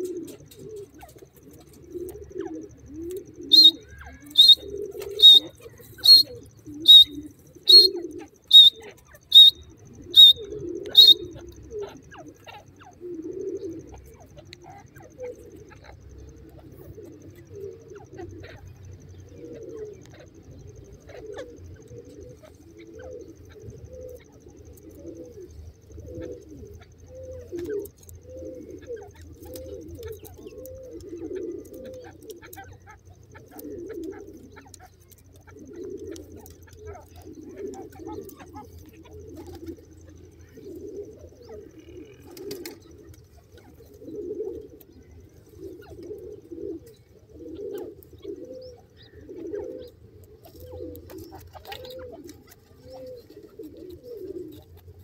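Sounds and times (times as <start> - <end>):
low soft cooing calls: 0.0 - 55.0
sharp high bird call: 3.5 - 11.2.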